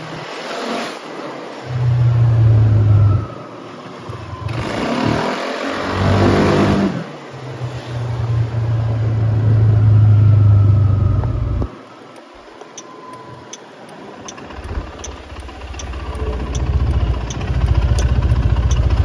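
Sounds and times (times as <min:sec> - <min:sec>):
scooter engine under throttle: 0:14.3 - 0:19.0.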